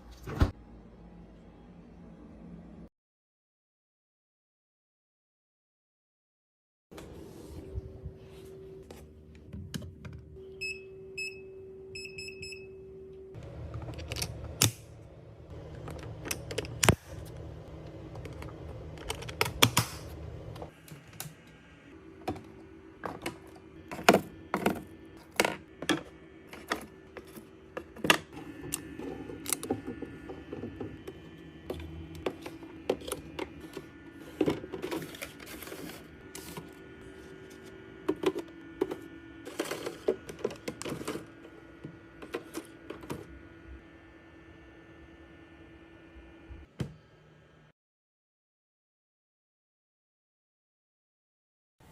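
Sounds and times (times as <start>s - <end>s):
steady low hum: 7.0s - 47.7s.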